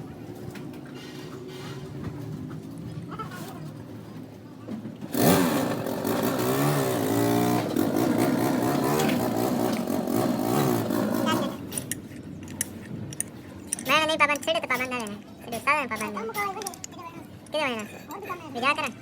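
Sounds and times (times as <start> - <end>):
engine revving: 5.1 - 11.6.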